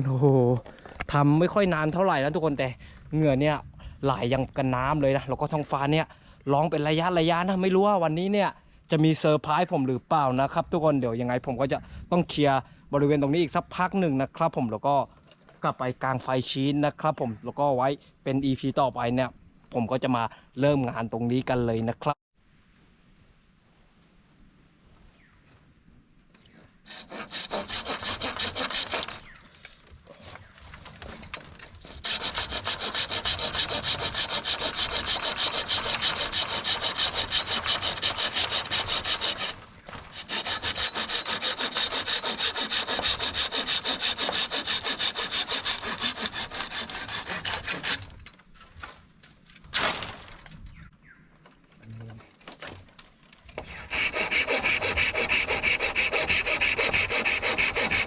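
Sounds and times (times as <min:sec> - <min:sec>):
high insect drone: 0:00.0 - 0:22.1, 0:24.9 - 0:58.0
hand saw cutting bamboo: 0:26.9 - 0:29.4, 0:31.7 - 0:48.1, 0:53.6 - 0:58.0.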